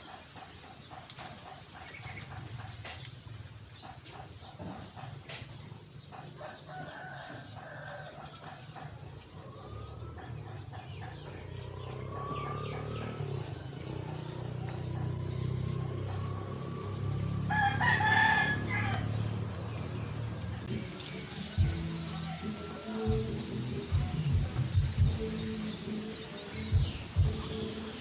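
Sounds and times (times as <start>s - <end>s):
drawn-out rising calls: 6.1s - 28.0s
rooster crowing: 6.3s - 20.4s, 21.4s - 23.4s.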